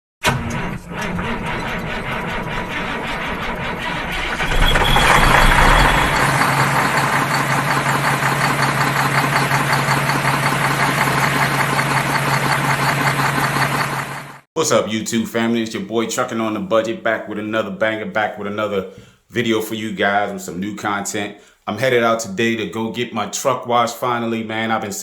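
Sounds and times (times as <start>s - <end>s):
truck engine running: 0.3s - 14.5s.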